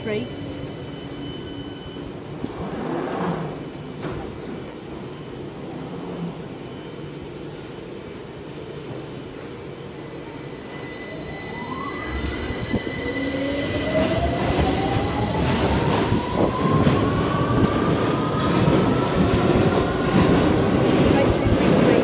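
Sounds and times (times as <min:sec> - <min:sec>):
wheels rumbling on rail: 0:12.0 - 0:22.0.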